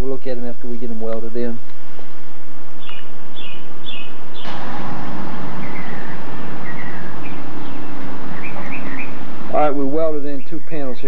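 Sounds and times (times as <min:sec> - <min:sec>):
steady rushing noise: 0:01.7 - 0:11.0
small birds chirping: 0:02.7 - 0:04.6, 0:05.5 - 0:11.0.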